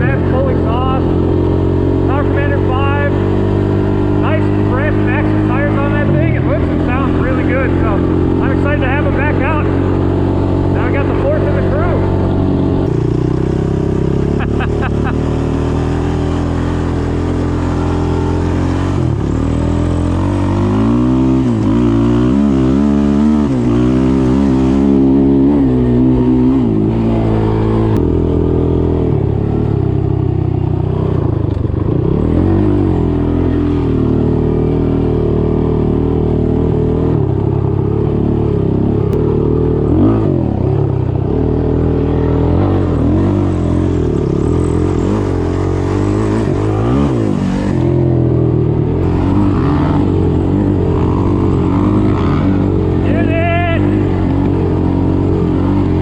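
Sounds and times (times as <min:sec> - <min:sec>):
off-road engine revving: 0:00.0 - 0:56.0.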